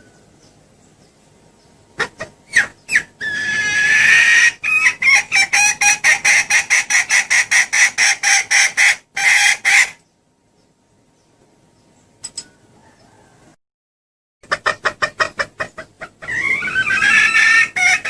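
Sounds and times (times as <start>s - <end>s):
junglefowl hen clucking and cackling: 2.0s - 10.0s, 12.4s - 13.6s, 14.4s - 18.0s.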